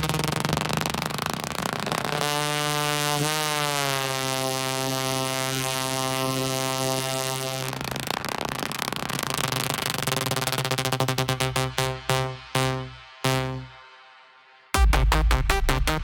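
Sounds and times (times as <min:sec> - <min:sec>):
held bass note: 0:00.0 - 0:01.4, 0:11.0 - 0:13.8, 0:14.8 - 0:16.0
hissing synth wash: 0:00.0 - 0:14.5
buzzy synthesizer chord: 0:00.0 - 0:16.0
dance beat: 0:10.4 - 0:14.1, 0:14.8 - 0:16.0.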